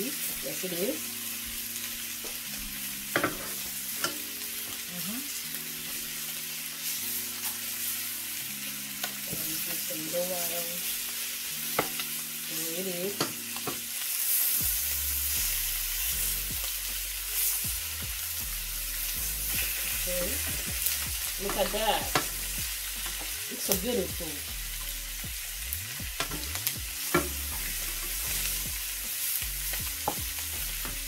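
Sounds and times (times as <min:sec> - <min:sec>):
chicken sizzling in a pan: 0:00.0 - 0:31.0.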